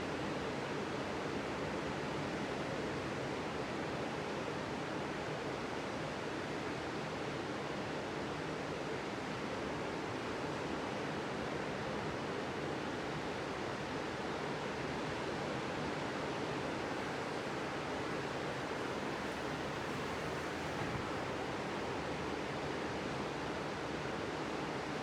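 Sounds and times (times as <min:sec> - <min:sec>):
waves breaking on beach: 0:16.9 - 0:22.9.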